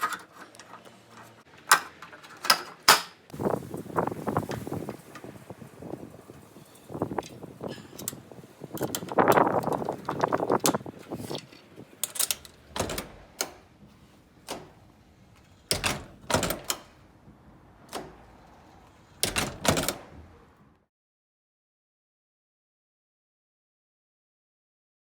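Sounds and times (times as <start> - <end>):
handling noise: 0.0 - 20.6
door latch clicking: 7.7 - 11.1, 12.0 - 17.0, 17.8 - 18.3, 19.2 - 20.2.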